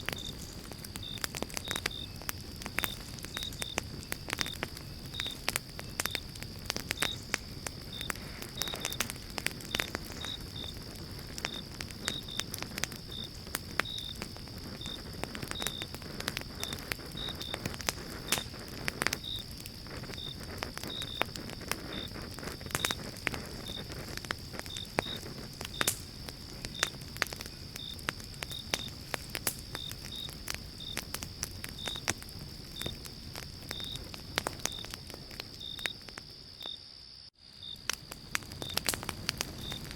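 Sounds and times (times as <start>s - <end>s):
low rush of flame: 0.0s - 36.5s, 37.4s - 39.9s
campfire crackling and popping: 0.0s - 39.9s
crickets chirping: 0.0s - 39.9s
high insect trill: 0.0s - 39.9s.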